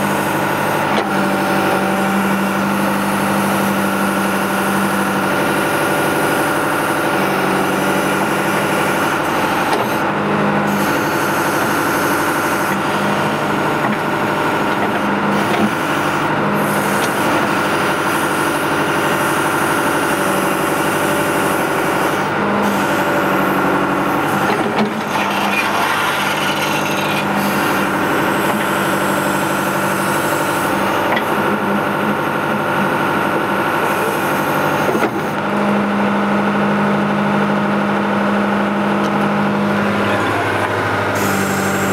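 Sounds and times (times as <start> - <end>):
diesel engine running: 0.0 - 41.9
backhoe digging in loose dirt: 5.1 - 33.0.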